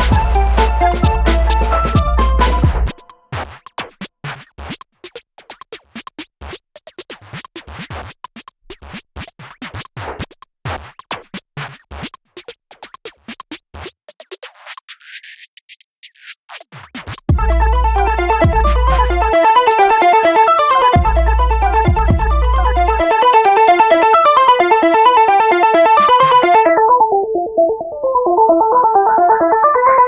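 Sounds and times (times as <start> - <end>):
electronic music: 0.0 - 3.2, 17.3 - 29.2
clicky scratch-like stutters: 0.8 - 23.0.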